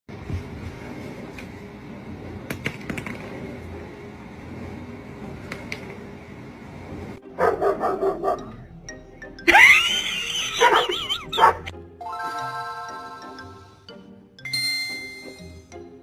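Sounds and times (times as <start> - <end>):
low background noise: 0.1 - 11.7
dog barking: 7.4 - 8.6, 10.6 - 11.7.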